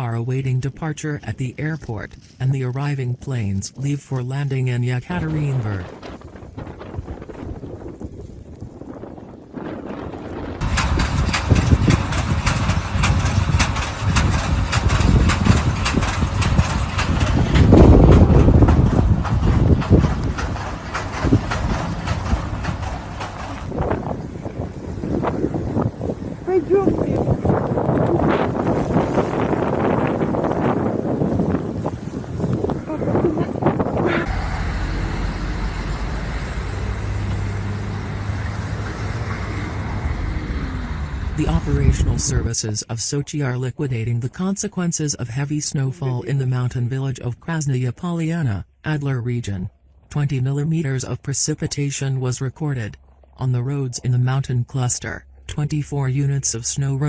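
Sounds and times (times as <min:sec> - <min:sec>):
gusty noise: 0:00.0 - 0:44.4
vehicle engine running: 0:10.3 - 0:42.6.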